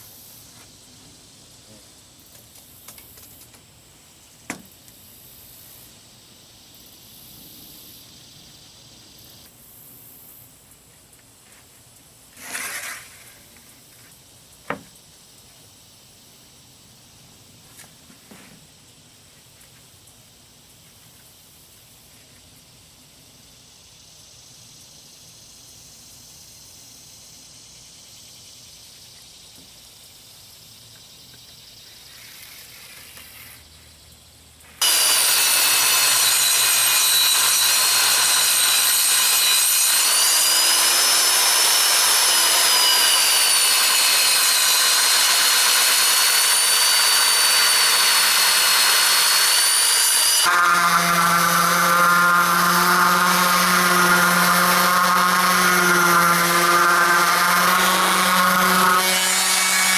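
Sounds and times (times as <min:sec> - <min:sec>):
power saw cutting plywood: 0:12.4 - 0:13.4, 0:34.8 - 0:59.9.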